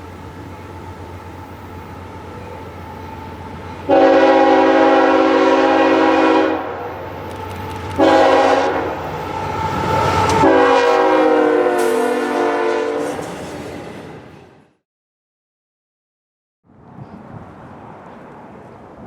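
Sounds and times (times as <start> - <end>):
train rumble: 0.0 - 14.8
locomotive air horn: 3.8 - 7.0, 8.0 - 13.4.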